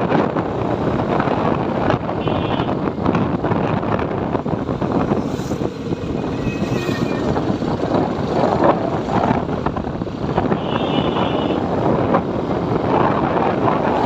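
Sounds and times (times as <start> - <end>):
wind rush on microphone: 0.0 - 14.0.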